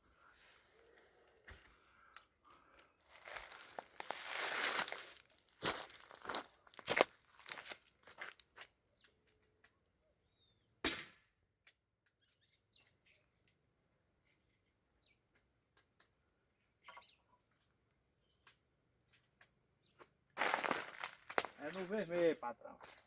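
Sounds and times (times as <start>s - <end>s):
birds chirping: 0.2s - 4.0s, 15.0s - 23.0s
airgun shot: 10.8s - 11.2s.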